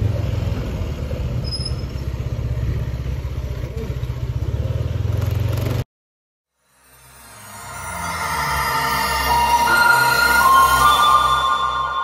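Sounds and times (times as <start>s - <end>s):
vehicle rumbling in motion: 0.0s - 5.8s.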